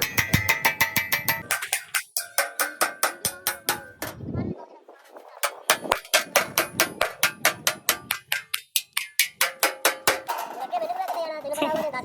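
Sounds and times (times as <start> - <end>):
hammer blows on metal: 0.0 - 4.3, 5.4 - 10.6.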